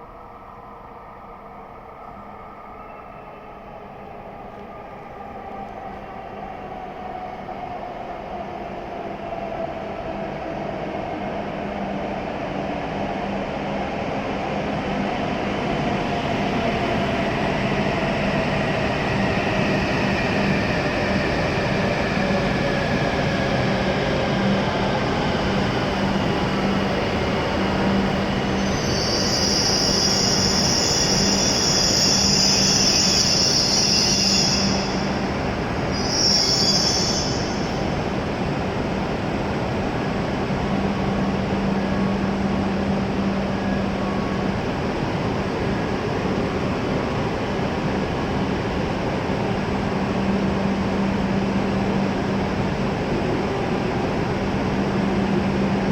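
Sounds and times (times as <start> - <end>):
train running whine: 0.0 - 55.9
high brake squeal: 28.4 - 35.3, 35.9 - 37.9.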